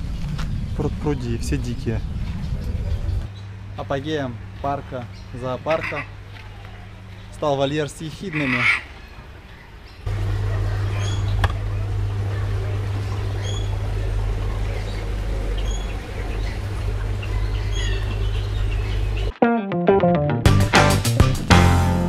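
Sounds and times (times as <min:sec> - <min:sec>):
steady low rumble: 0:00.0 - 0:05.4, 0:10.0 - 0:19.3
bird chirping: 0:13.3 - 0:13.8, 0:14.6 - 0:19.3.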